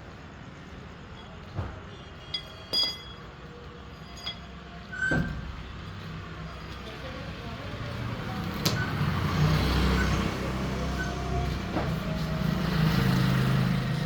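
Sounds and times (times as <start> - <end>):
metallic clinks and knocks: 2.2 - 4.7.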